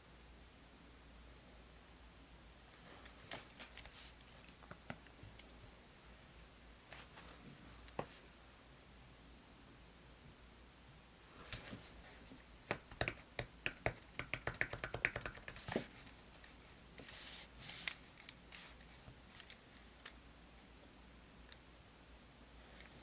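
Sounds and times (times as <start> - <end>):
stationery clicks and taps: 12.7 - 15.7.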